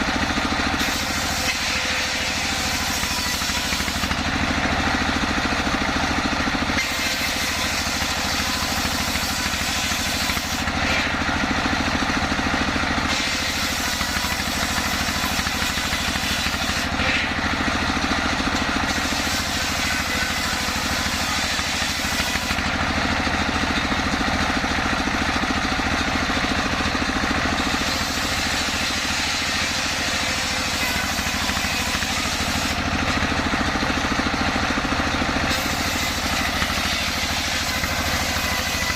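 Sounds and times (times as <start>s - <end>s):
sawmill saw and engine droning: 0.0s - 38.9s
high saw hiss: 0.8s - 4.2s, 18.9s - 22.5s.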